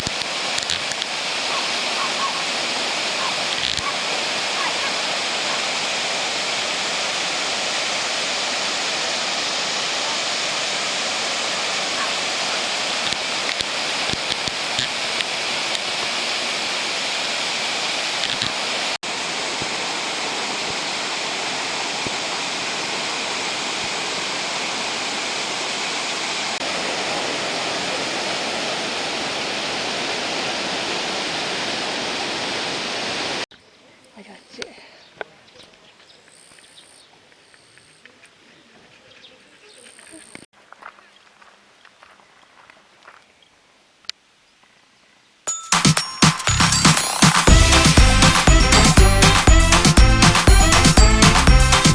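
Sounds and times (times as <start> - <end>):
waterfall rushing: 0.0 - 33.5, 45.5 - 51.9.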